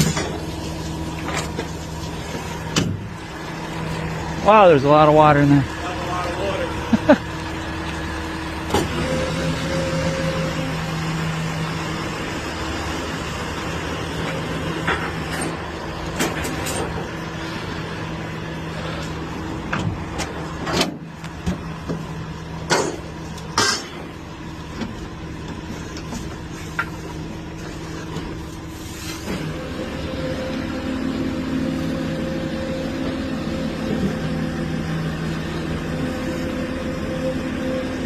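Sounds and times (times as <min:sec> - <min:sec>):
diesel engine running: 0:00.0 - 0:38.0
short sharp clanks from truck: 0:22.6 - 0:24.1.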